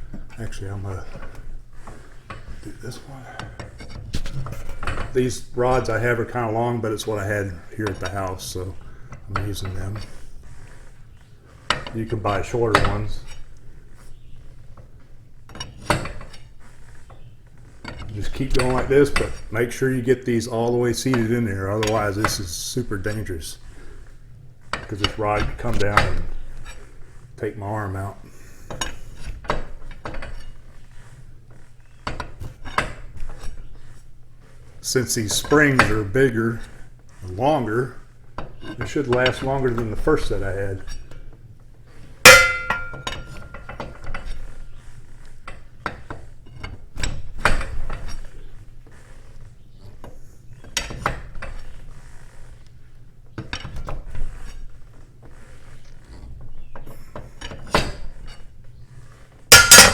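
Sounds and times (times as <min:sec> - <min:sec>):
metal rods clinking in spring cone: 0:42.2 - 0:44.9, 0:59.5 - 0:59.9.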